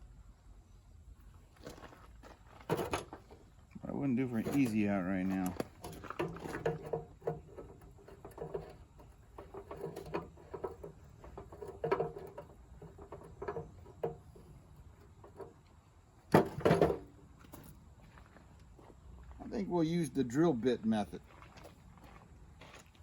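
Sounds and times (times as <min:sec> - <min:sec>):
hand tools knocking and clinking: 0:04.3 - 0:14.5
tools clattering: 0:04.3 - 0:15.6.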